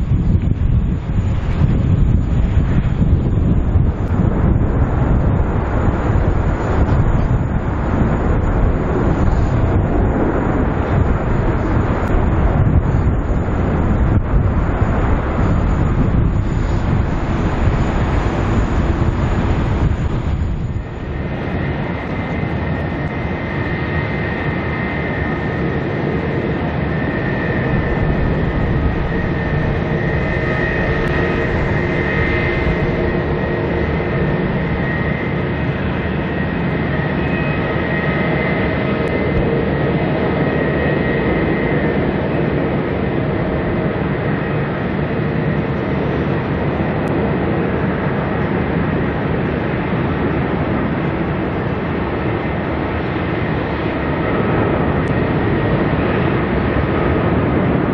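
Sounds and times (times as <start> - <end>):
jet engines whining: 0.0 - 57.9.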